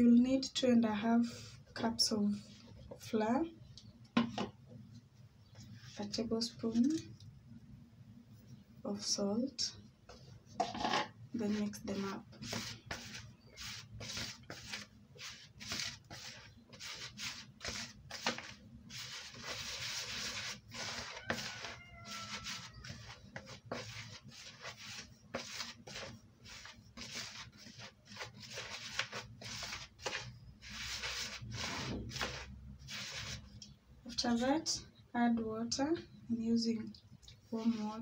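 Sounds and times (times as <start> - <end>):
fingers mixing flour in bowl: 11.4 - 33.6, 37.5 - 38.0.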